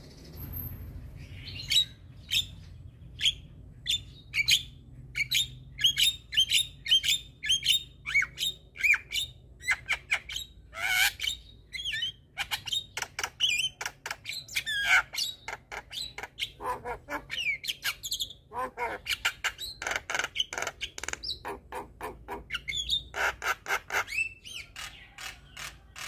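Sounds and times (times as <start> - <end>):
bird harsh squawk: 14.5 - 26.0.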